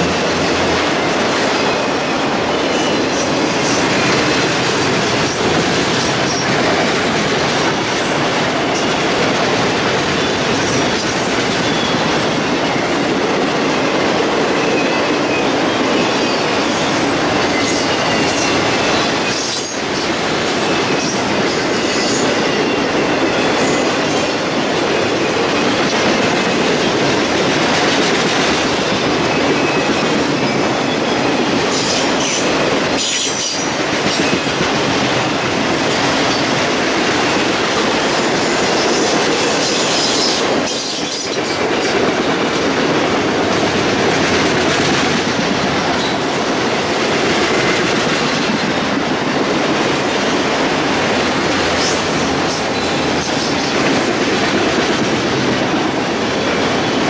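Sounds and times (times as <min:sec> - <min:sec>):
high wheel squeals: 0:00.0 - 0:04.1, 0:14.1 - 0:27.0
train wheels rushing on rail: 0:00.0 - 0:57.0.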